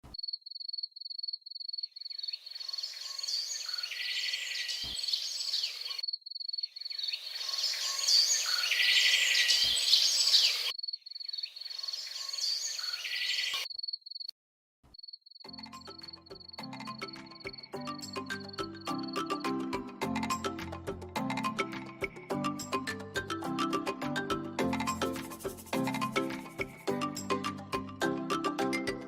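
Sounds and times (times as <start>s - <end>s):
birds chirping: 1.6s - 14.3s.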